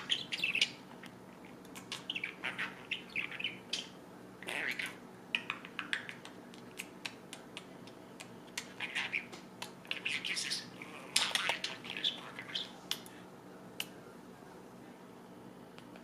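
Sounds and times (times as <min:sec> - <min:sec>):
budgerigar chirping and chattering: 0:00.0 - 0:00.8, 0:01.9 - 0:06.2.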